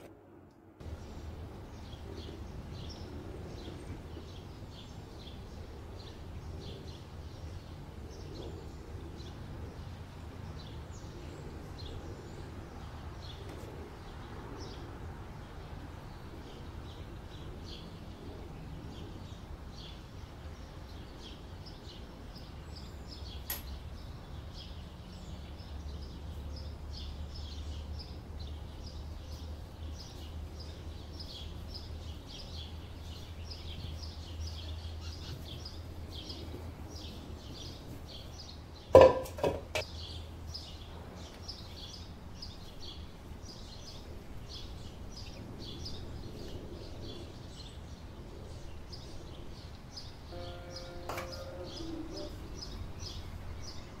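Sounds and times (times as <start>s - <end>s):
small birds chirping: 0.8s - 54.0s
sharp click: 23.5s - 23.7s.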